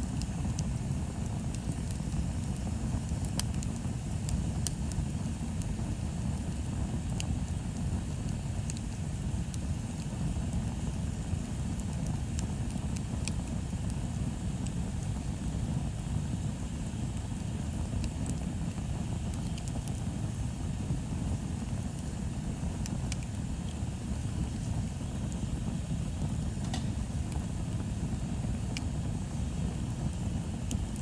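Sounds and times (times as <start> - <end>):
bonfire crackling and popping: 0.0 - 31.0
low fire rumble: 0.0 - 31.0.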